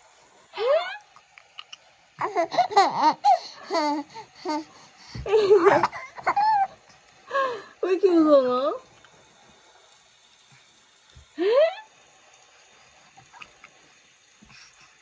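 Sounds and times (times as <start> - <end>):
baby laughing: 2.2 - 6.8.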